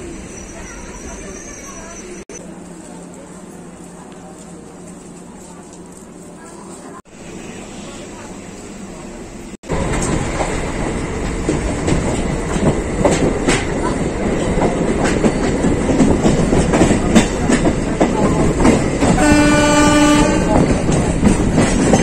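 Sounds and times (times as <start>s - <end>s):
train wheels clattering over rail joints: 9.8s - 22.0s
train horn: 19.2s - 20.8s.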